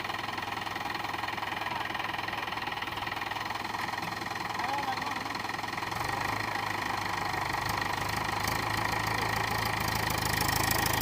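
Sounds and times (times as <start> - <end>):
tractor diesel engine clattering: 0.0 - 11.0.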